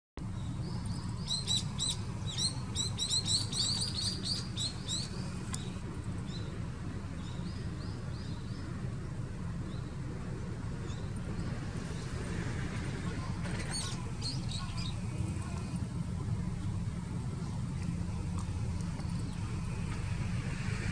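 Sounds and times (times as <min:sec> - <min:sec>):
small birds chirping: 0:00.2 - 0:12.3, 0:13.1 - 0:16.0.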